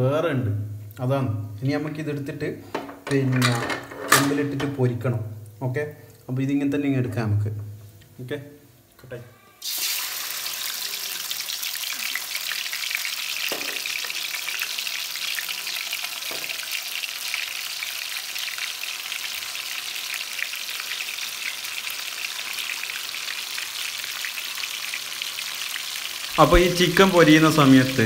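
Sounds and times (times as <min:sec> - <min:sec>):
chicken sizzling in hot oil: 0:09.6 - 0:28.0.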